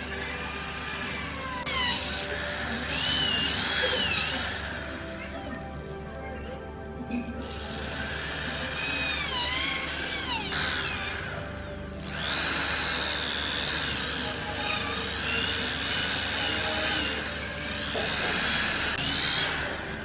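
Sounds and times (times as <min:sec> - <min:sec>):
electric power tool whining: 0:00.0 - 0:20.0.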